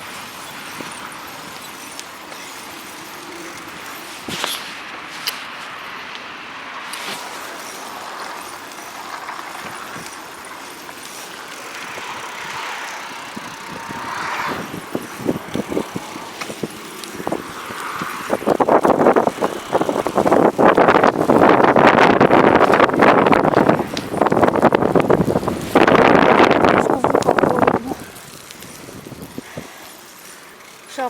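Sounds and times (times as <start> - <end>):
bicycle riding on snow: 0.0 - 31.0
wind gusts buffeting microphone: 7.1 - 29.9
wind rushing hiss: 11.4 - 30.6.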